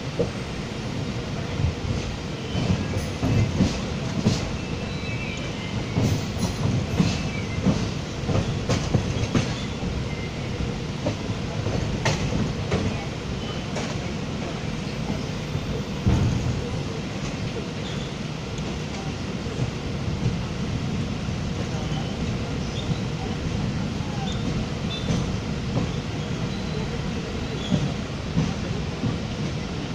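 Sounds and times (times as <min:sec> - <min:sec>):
train rumbling: 0:00.0 - 0:29.9.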